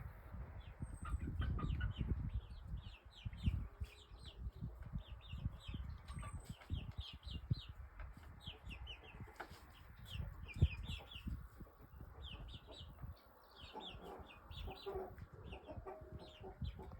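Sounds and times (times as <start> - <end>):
chickens peeping: 0.3 - 16.9
chickens clucking: 0.4 - 16.9.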